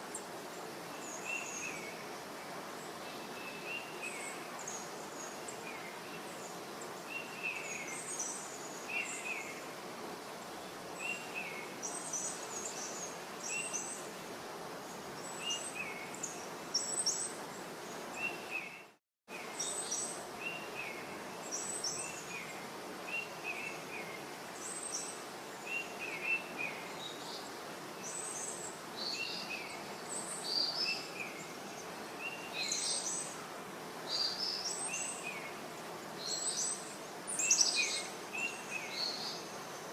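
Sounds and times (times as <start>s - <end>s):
steady background hiss: 0.0s - 39.9s
small birds chirping: 14.8s - 33.4s, 34.0s - 39.9s.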